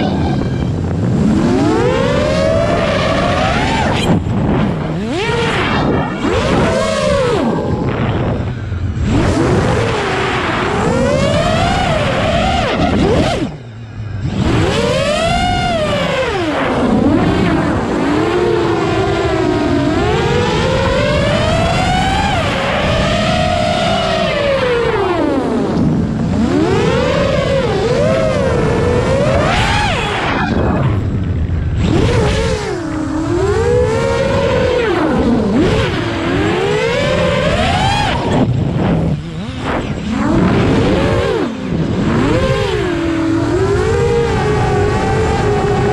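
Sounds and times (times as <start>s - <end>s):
engine revving up and down: 0.0s - 45.9s.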